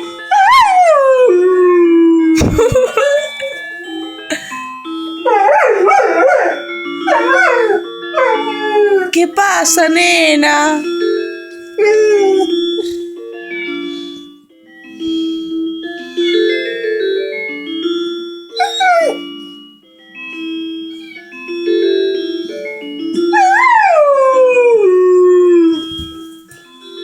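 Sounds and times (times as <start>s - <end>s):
phone alarm melody: 0.0s - 27.0s
dog howling: 0.3s - 2.4s, 5.3s - 9.2s, 11.8s - 13.0s, 18.6s - 19.3s, 23.4s - 25.9s.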